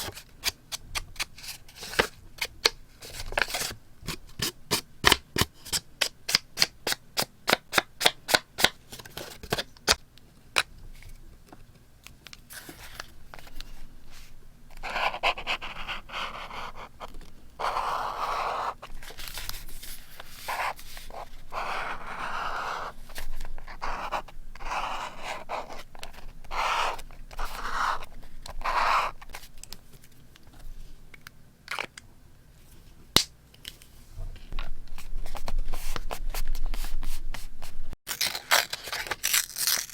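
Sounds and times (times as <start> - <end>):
paper scraping and rustling: 18.5 - 21.6.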